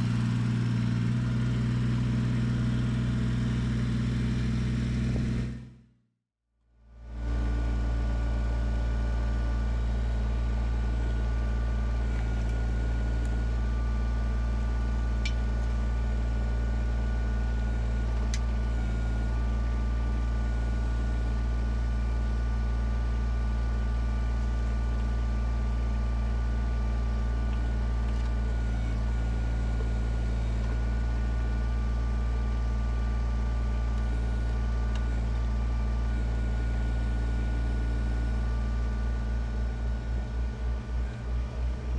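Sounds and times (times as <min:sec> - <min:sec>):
backhoe digging: 0:00.0 - 0:05.7, 0:10.8 - 0:20.2
diesel tractor engine running: 0:00.0 - 0:05.9, 0:06.8 - 0:41.9.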